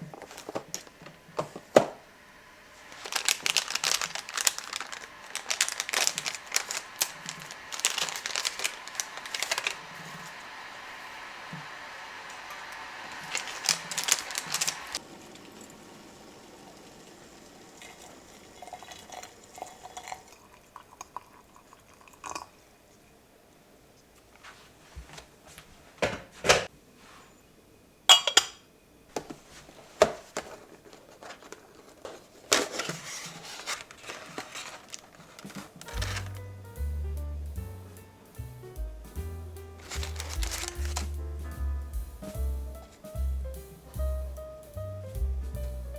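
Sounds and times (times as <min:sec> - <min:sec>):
steady hissing noise: 0:00.0 - 0:45.9
dishes and utensils clinking: 0:28.1 - 0:28.7.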